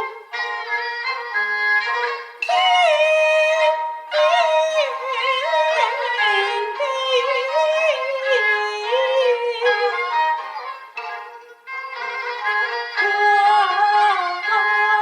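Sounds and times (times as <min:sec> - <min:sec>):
fiddle accompaniment: 0:00.0 - 0:15.0
high voice singing opera: 0:02.5 - 0:10.1, 0:13.0 - 0:15.0.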